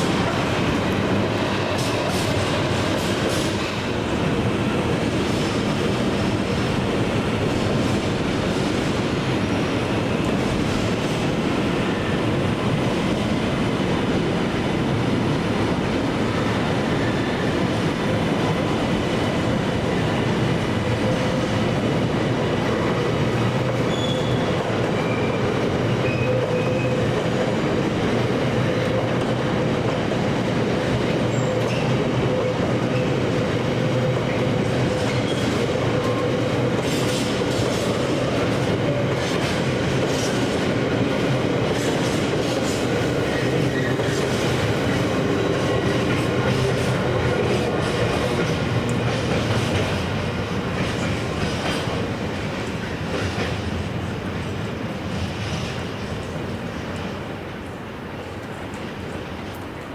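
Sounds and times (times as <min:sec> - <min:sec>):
train wheels rumbling on rails: 0:00.0 - 0:59.9
faint wheel squeal: 0:23.8 - 0:25.4.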